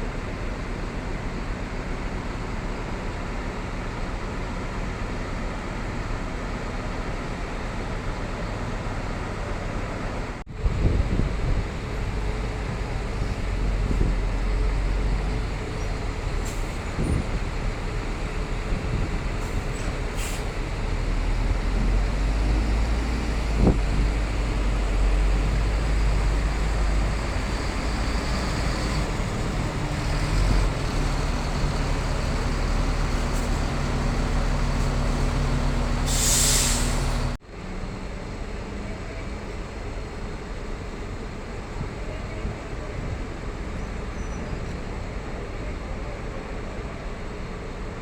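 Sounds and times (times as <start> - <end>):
large vehicle rumbling: 0.0 - 48.0
short hiss: 36.1 - 37.4.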